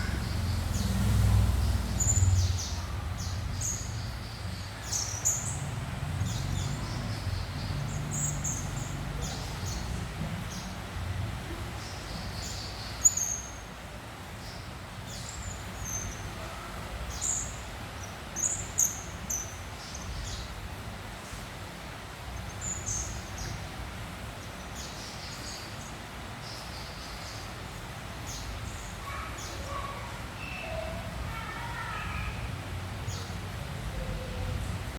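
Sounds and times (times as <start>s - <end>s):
bird twittering high chirps: 1.6s - 10.7s.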